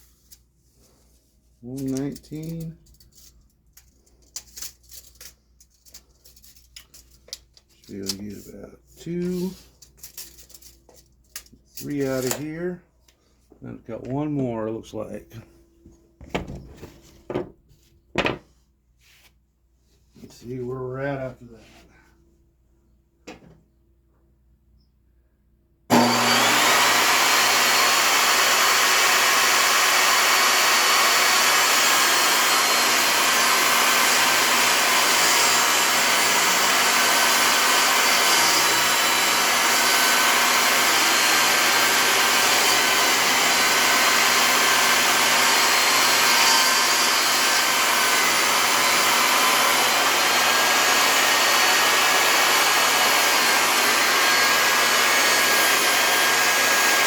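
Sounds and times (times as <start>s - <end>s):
woodworking power tool whirring: 25.9s - 57.0s.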